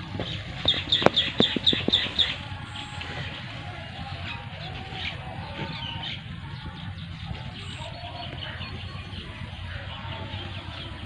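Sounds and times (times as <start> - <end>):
low rumble: 0.0 - 11.0
small birds chirping: 0.0 - 11.0.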